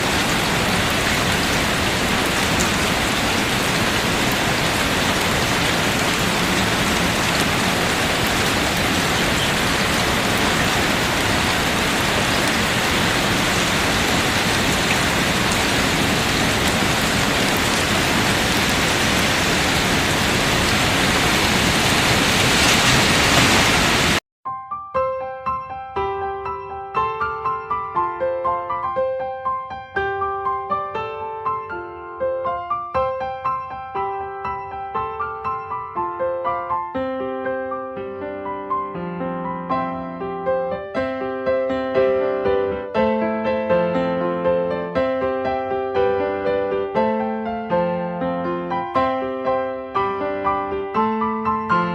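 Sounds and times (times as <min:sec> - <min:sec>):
steady rain hiss: 0:00.0 - 0:24.2.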